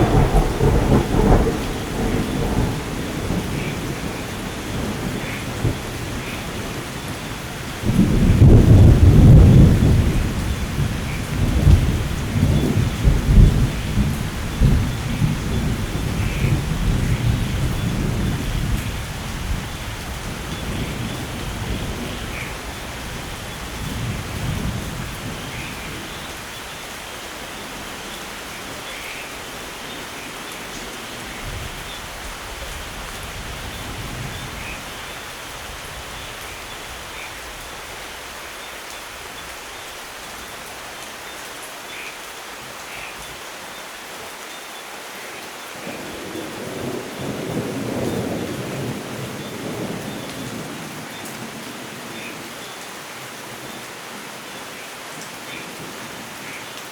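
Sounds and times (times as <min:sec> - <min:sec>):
thunder rolling: 0:00.0 - 0:06.8, 0:07.8 - 0:25.7
rain falling: 0:00.0 - 0:56.9.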